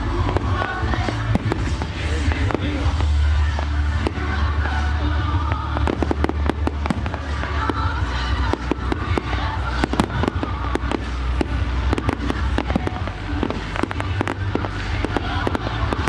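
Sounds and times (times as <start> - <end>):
fireworks bangs and crackles: 0.0 - 16.0
low rumble: 0.0 - 16.0.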